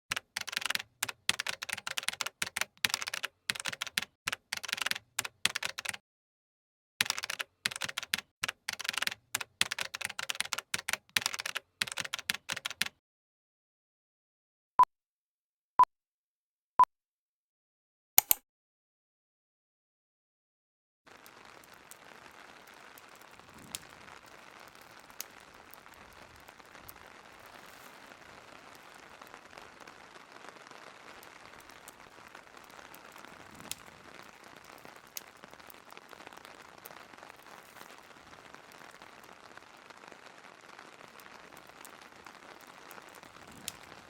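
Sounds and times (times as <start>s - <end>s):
typing on computer keyboard: 0.1s - 6.0s, 7.0s - 13.0s.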